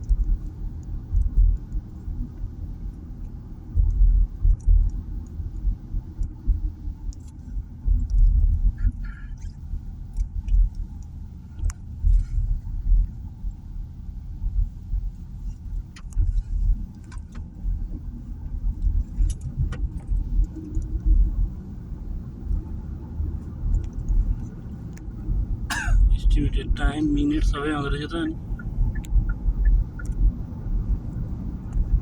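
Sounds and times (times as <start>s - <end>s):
light clicks and rattles: 0.0s - 13.7s, 15.0s - 21.5s, 22.4s - 25.3s
car road and engine rumble: 0.0s - 32.0s.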